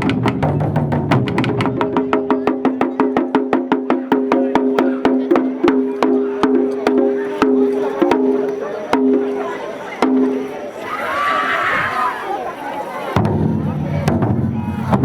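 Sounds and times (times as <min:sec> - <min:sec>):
taiko drums fast rhythm: 0:00.0 - 0:09.2, 0:13.2 - 0:15.0
deep drum rumble: 0:13.2 - 0:15.0.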